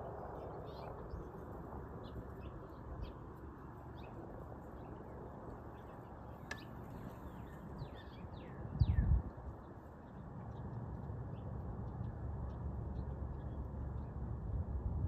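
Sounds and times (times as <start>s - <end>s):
low background noise: 0.0s - 15.0s
birds chirping: 2.0s - 14.2s.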